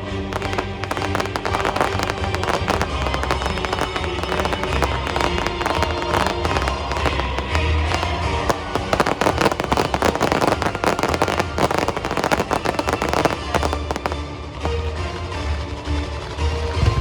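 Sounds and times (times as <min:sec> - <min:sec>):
fireworks crackling and popping: 0:00.0 - 0:17.0
music: 0:00.0 - 0:17.0.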